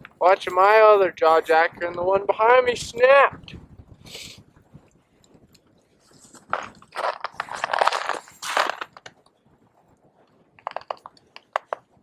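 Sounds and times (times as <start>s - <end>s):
footsteps crunching on snow: 6.0s - 9.1s.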